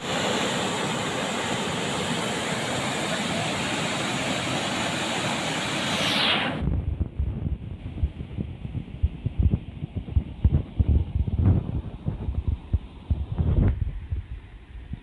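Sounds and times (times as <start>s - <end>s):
water rushing: 0.0s - 6.8s
wind rumbling on microphone: 6.1s - 15.0s.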